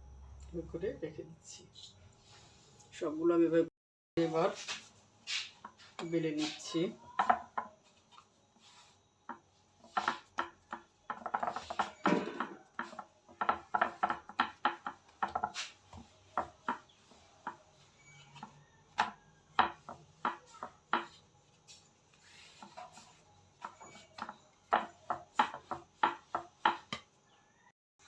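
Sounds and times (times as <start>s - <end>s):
rolling pin knocking on board: 9.3s - 21.2s, 22.4s - 27.2s.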